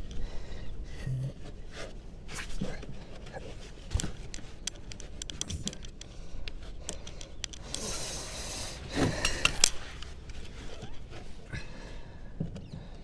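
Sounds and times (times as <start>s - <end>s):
hands rubbing tape: 1.5s - 11.5s
clicks and scrapes: 1.8s - 11.4s
brief hiss: 7.7s - 9.8s.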